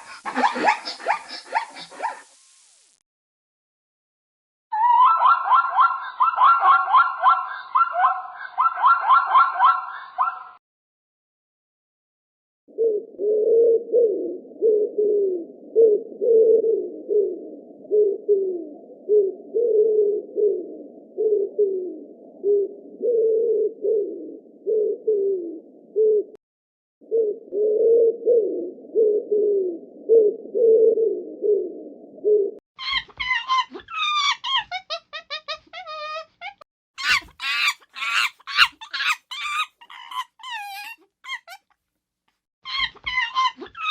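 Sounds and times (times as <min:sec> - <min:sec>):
low cooing bird calls: 0:04.7 - 0:10.6, 0:12.7 - 0:26.4, 0:27.0 - 0:36.3, 0:37.0 - 0:41.6, 0:42.7 - 0:43.9
rapid high-pitched bird calls: 0:37.0 - 0:41.6.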